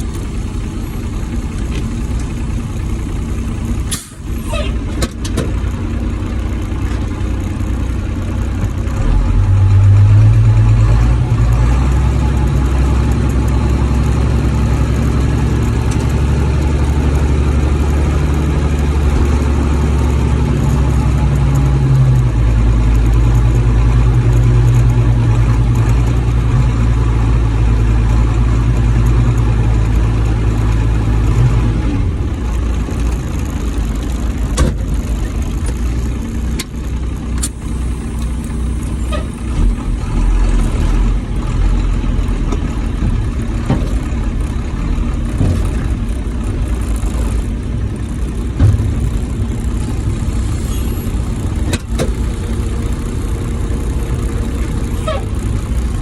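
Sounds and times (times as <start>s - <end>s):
truck engine drone: 0.0s - 56.0s
sharp knocks from truck: 34.5s - 35.0s, 48.5s - 49.3s.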